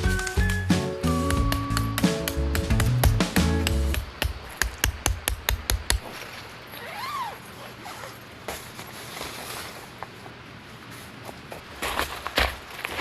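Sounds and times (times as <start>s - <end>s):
tent fabric rustling: 6.1s - 11.3s.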